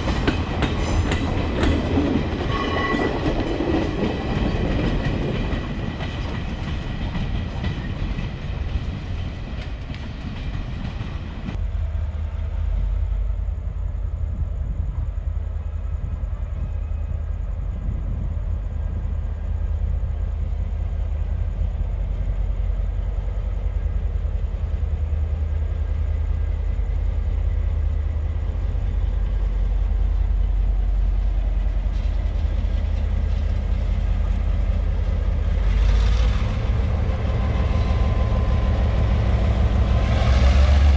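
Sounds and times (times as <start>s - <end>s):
train wheels clattering on rails: 0.0s - 11.8s, 17.8s - 40.9s
heavy low rumble: 11.4s - 40.9s.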